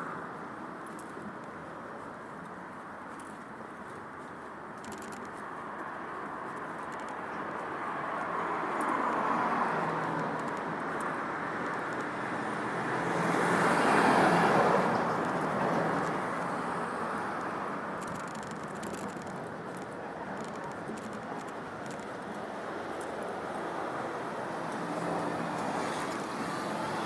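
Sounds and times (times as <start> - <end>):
car passing: 7.9 - 17.8.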